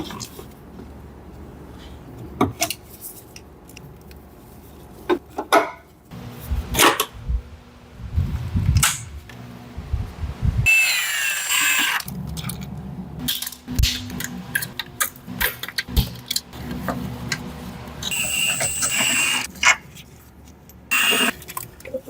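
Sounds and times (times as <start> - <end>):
power tool whining: 10.7 - 12.1, 18.0 - 19.5, 20.9 - 21.3.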